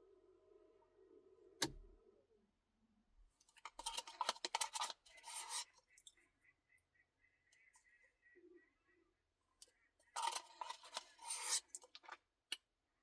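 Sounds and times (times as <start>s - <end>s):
scraping and crunching while eating: 3.4s - 5.8s, 10.1s - 12.2s.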